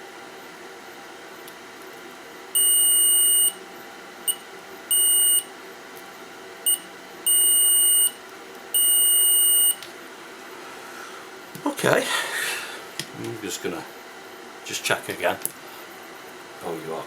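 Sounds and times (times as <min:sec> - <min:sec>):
continuity tester beeping: 0:02.6 - 0:03.6, 0:04.3 - 0:05.5, 0:06.6 - 0:09.8.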